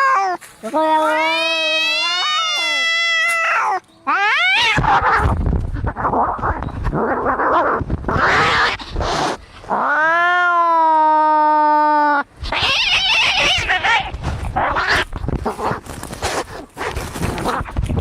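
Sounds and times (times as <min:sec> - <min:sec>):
cat yowling: 0:00.0 - 0:05.3, 0:09.7 - 0:15.1
cats hissing and spitting: 0:04.5 - 0:09.8, 0:12.4 - 0:18.0.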